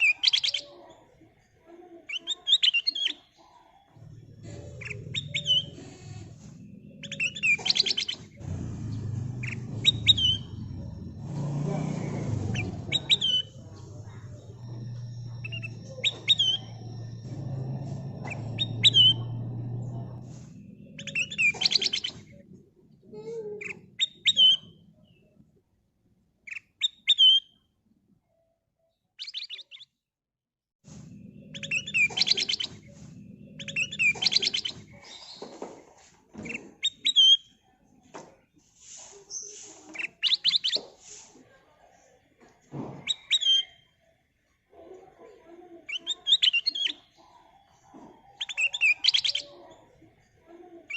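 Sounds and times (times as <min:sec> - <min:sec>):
bird chattering: 0:04.0 - 0:22.4, 0:31.4 - 0:35.5
low rumble: 0:04.0 - 0:22.6, 0:30.9 - 0:35.0
bird whistled calls: 0:04.6 - 0:22.4, 0:31.4 - 0:35.4.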